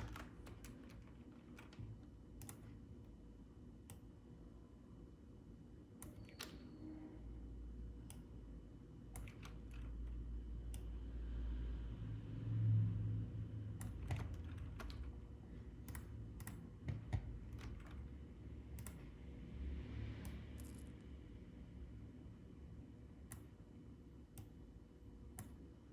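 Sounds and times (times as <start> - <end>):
computer keyboard keystrokes: 0.0 - 2.8, 9.1 - 10.9, 13.8 - 19.1.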